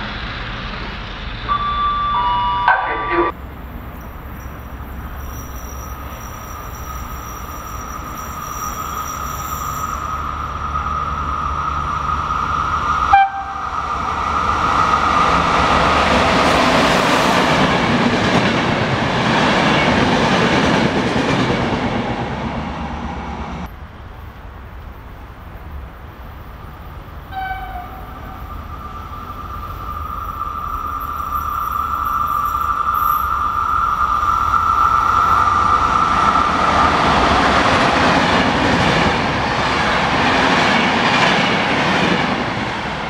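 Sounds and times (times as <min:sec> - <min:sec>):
high whine of approaching train: 0:00.0 - 0:43.0
train passing at speed: 0:00.0 - 0:43.0.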